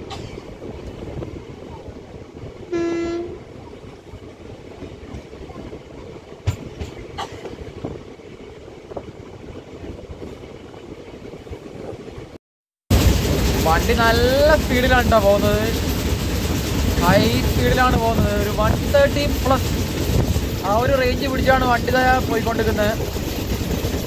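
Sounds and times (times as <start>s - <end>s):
train wheels rumbling on track: 0.0s - 24.0s
train horn blast: 2.7s - 3.4s.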